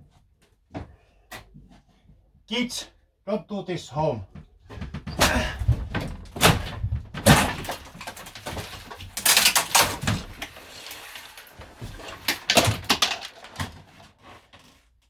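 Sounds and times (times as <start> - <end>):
interior fittings being wrenched out: 4.7 - 14.0.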